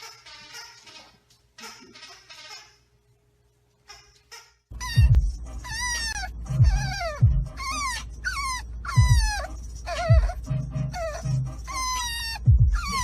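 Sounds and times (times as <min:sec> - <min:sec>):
music with low beat: 0:04.7 - 0:13.0
dog whining: 0:04.8 - 0:13.0.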